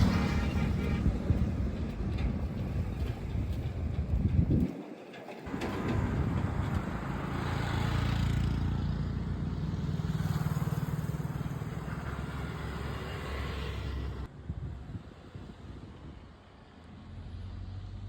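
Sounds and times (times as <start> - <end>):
engine running: 5.5 - 14.3.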